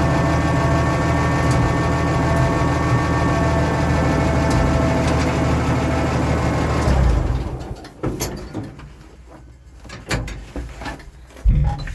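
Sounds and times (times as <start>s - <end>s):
tractor engine running: 0.0s - 8.0s.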